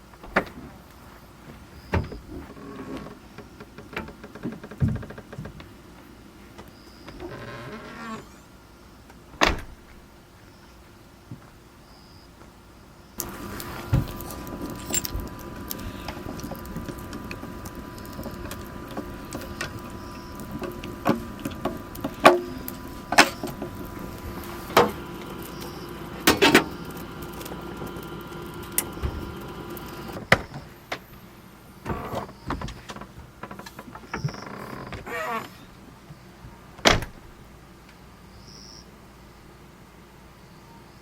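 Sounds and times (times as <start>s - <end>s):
steady machine hum: 13.1s - 32.5s.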